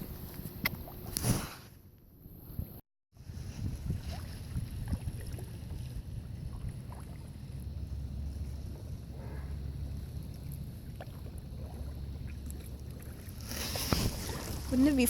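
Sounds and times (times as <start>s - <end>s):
wind on microphone: 2.4s - 10.0s.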